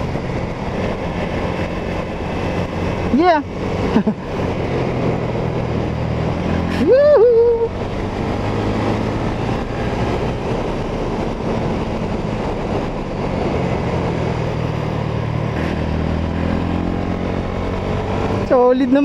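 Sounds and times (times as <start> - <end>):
wind noise: 0.0 - 19.0.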